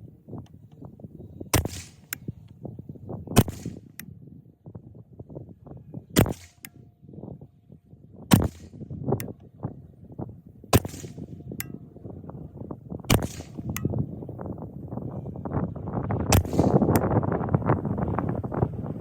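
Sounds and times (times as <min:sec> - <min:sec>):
rifle gunshots: 0:01.6 - 0:02.2, 0:06.2 - 0:06.7, 0:08.3 - 0:08.8, 0:10.8 - 0:11.3, 0:13.1 - 0:13.6
sharp click: 0:13.1 - 0:13.9.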